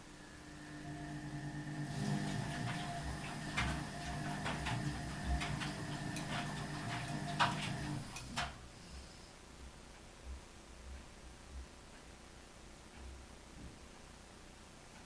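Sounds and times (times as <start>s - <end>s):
washing machine humming: 0.0s - 9.0s.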